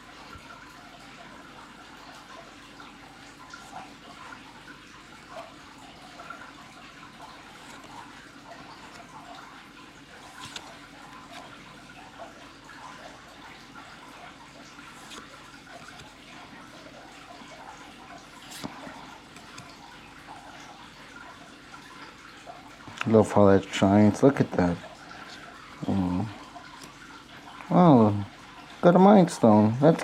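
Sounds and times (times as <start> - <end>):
trading cards sliding and rustling: 7.5 - 8.1, 10.2 - 11.7, 14.9 - 16.2, 18.4 - 19.7.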